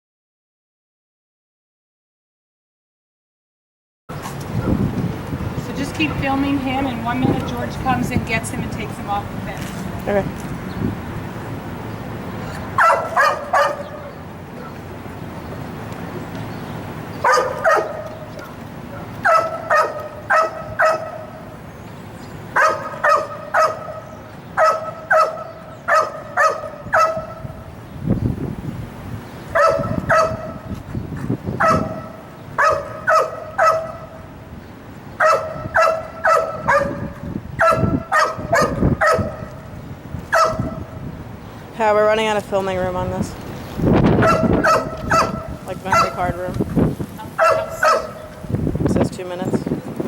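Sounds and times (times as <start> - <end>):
dog barking: 12.8 - 14.8, 17.2 - 21.4, 22.6 - 27.5, 29.6 - 30.7, 31.6 - 34.2, 35.2 - 39.6, 40.3 - 40.9, 44.2 - 46.3, 47.3 - 48.5.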